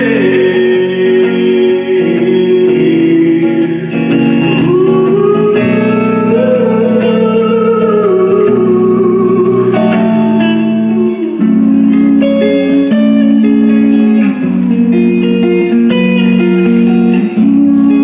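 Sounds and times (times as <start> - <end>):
band playing with guitars: 0.0 - 18.0
sliding guitar lead line: 0.0 - 18.0.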